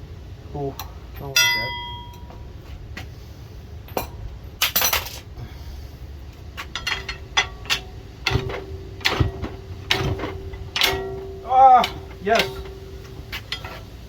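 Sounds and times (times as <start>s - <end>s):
faint steady tone: 0.0s - 2.5s
tools clinking on metal: 0.8s - 2.4s, 3.9s - 5.3s, 6.6s - 14.0s.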